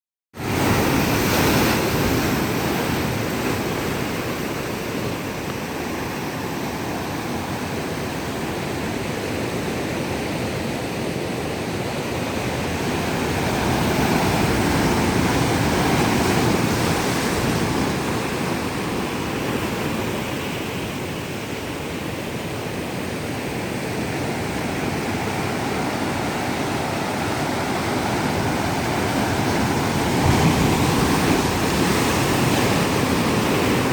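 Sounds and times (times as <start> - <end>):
ocean surf breaking on shore: 0.4 - 33.9
wind on microphone: 23.6 - 33.9.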